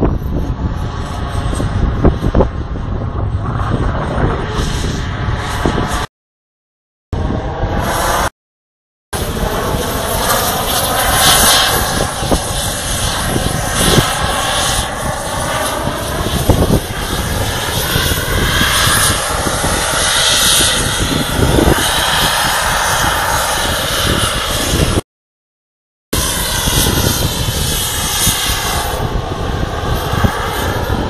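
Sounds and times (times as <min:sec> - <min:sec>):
model jet engine running: 0:00.0 - 0:06.1, 0:09.2 - 0:25.0, 0:26.2 - 0:31.0.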